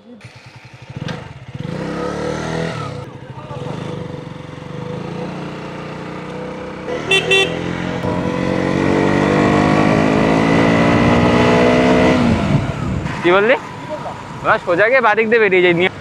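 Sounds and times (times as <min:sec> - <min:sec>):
motorcycle engine pulling away: 0:00.0 - 0:13.1
motorcycle horn beeps: 0:06.9 - 0:07.9.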